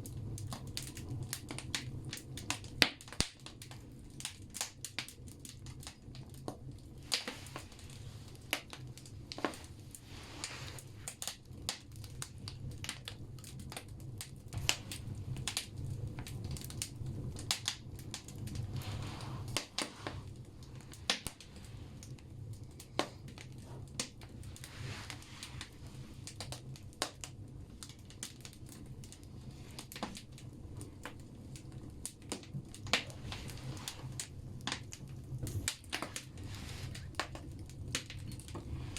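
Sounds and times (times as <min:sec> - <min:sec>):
firewood crackling and popping: 0:00.0 - 0:38.9
low rumble of fire: 0:00.0 - 0:38.9
soft hissing: 0:07.0 - 0:11.3, 0:18.4 - 0:26.4, 0:33.0 - 0:34.4, 0:36.0 - 0:37.4.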